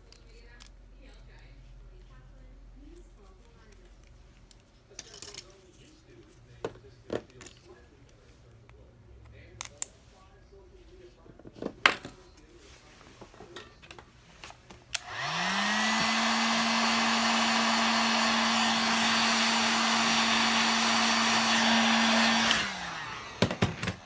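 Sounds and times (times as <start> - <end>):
hot-air blower motor humming: 12.4 - 24.0.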